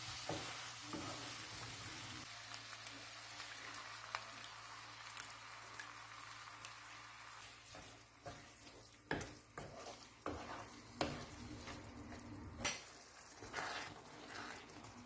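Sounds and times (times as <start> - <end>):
utensil scraping pan: 7.6 - 15.0.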